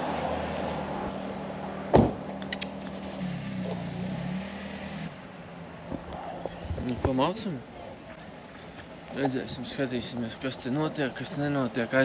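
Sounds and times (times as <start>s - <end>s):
loud thump: 1.9s - 2.2s.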